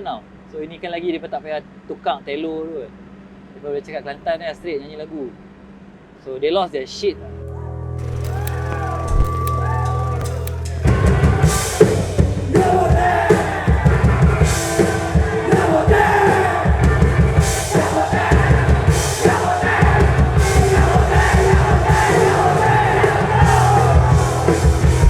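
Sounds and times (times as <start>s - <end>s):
crowd: 8.0s - 25.0s
punk band playing: 8.0s - 25.0s.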